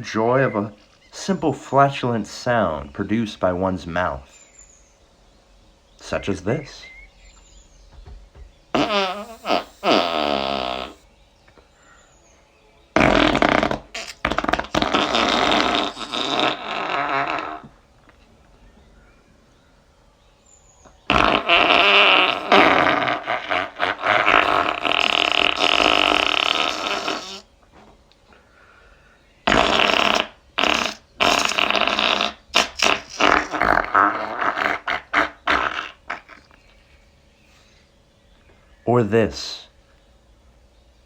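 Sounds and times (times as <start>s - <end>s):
person blowing raspberries: 8.7s - 11.0s, 13.0s - 17.7s, 21.0s - 27.5s, 29.5s - 36.7s.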